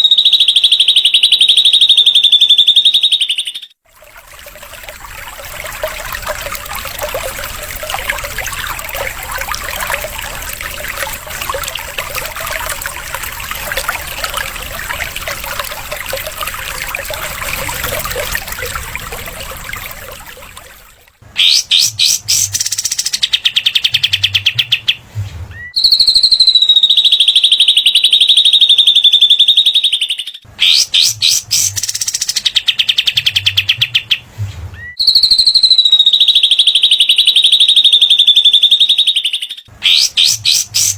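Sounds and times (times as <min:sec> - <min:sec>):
fast high bird trills: 0:21.4 - 0:23.8, 0:39.8 - 0:40.9
songbirds chattering: 0:39.8 - 0:40.9.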